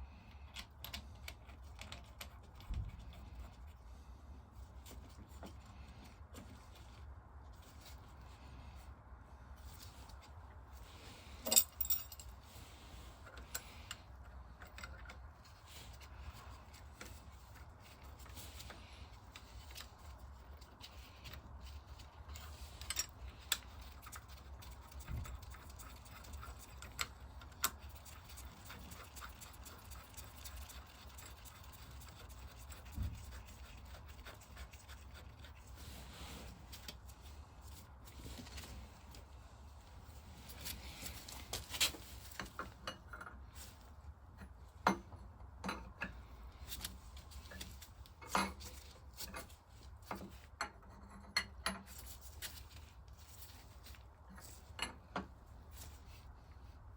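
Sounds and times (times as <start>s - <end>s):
metal tools clicking and knocking: 11.4s - 12.3s.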